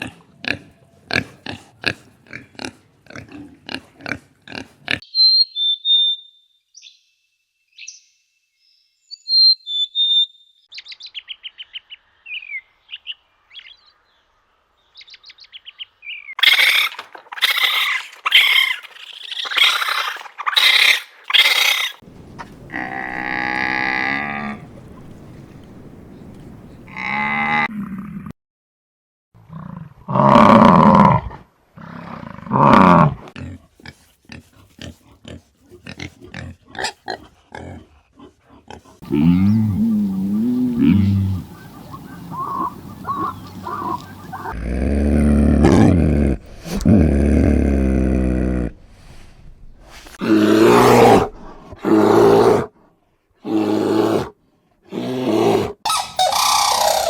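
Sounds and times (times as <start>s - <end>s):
animal grunts: 0.0s - 5.0s, 22.3s - 25.0s, 29.5s - 49.3s
loud harsh animal calls: 16.4s - 25.0s, 39.0s - 45.9s, 55.4s - 57.0s
long drawn-out pitched call: 39.0s - 44.6s, 55.9s - 57.0s.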